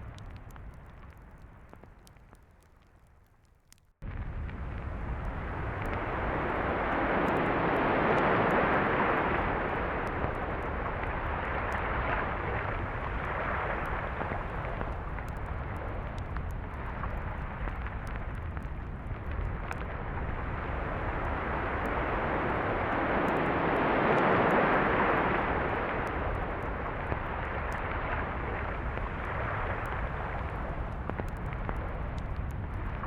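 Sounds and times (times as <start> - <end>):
ocean surf washing on beach: 5.4 - 16.0, 20.4 - 33.0.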